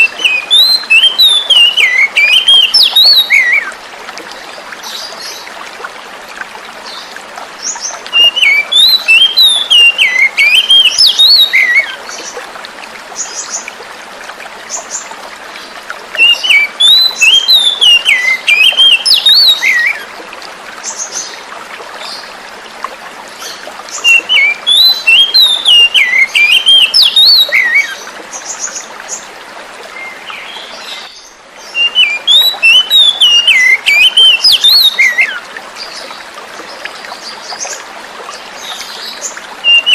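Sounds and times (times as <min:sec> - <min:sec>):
bird whistled song: 0:00.0 - 0:03.7, 0:08.1 - 0:12.0, 0:16.2 - 0:20.0, 0:24.0 - 0:28.0, 0:30.0 - 0:35.4, 0:39.6 - 0:39.9
running water: 0:00.0 - 0:39.9.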